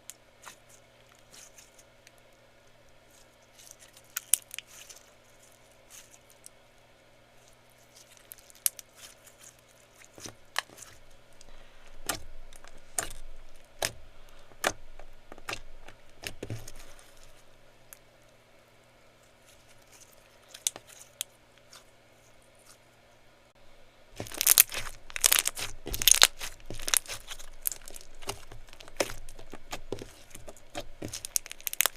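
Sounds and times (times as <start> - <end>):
slime clicking and popping: 24.2 - 31.9.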